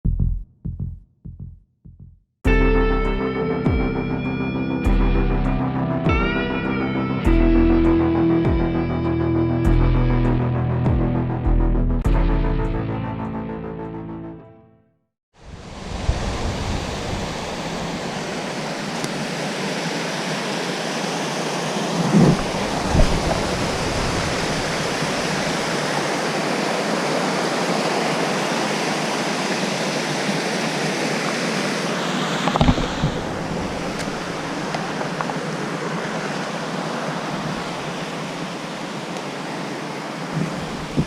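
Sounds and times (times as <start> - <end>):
waterfall rushing: 15.4 - 41.0.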